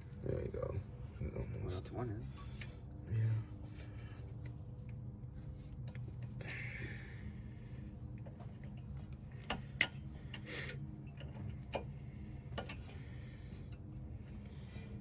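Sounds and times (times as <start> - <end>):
metal clicks and taps from hand tools: 11.0 - 11.9, 12.5 - 12.8.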